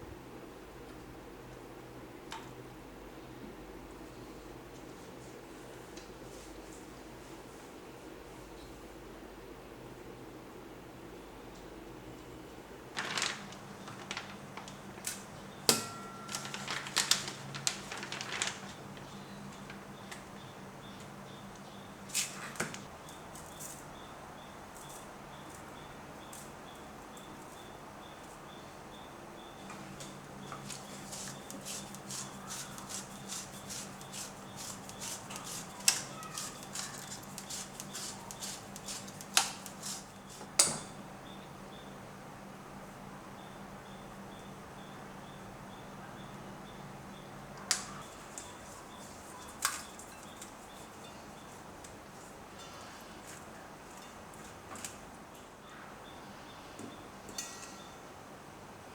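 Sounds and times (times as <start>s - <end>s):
sharp ringing clink: 15.7s - 16.4s
utensils and cookware clicking: 30.6s - 41.0s.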